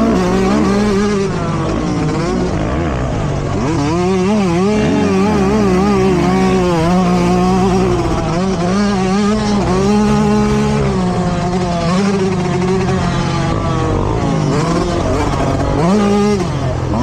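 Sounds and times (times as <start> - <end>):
dirt bike engine running hard: 0.0 - 17.0.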